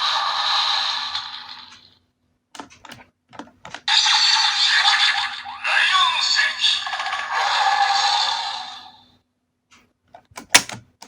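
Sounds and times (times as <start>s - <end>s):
toy electronic sound effects: 3.9s - 9.1s.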